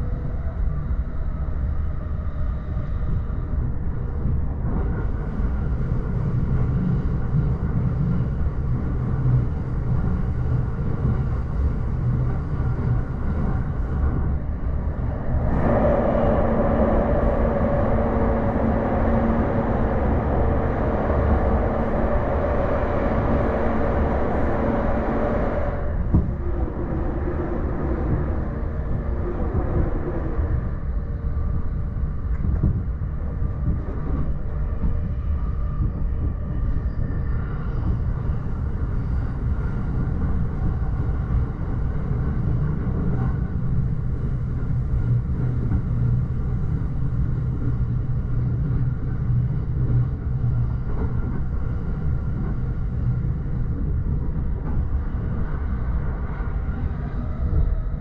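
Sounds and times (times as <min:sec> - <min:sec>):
rumble of train wheels on track: 0:00.0 - 0:58.0
deep drone: 0:05.8 - 0:33.9.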